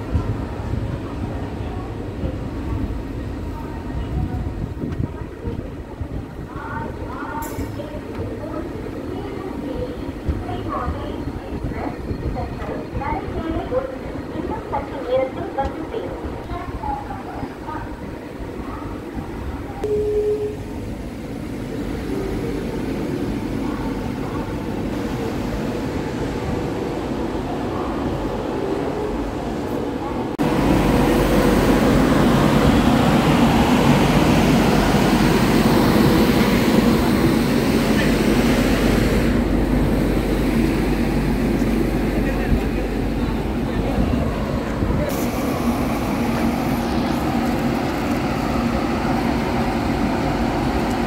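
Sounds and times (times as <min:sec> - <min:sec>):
train at platform: 0:00.0 - 0:51.0
people talking: 0:00.1 - 0:21.0, 0:22.0 - 0:30.4, 0:40.9 - 0:48.7.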